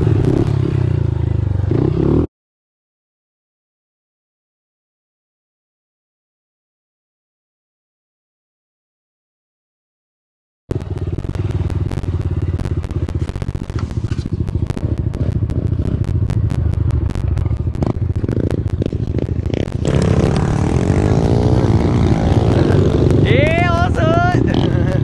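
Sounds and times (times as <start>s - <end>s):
pit bike engine revving: 0.0s - 2.3s, 10.7s - 25.0s.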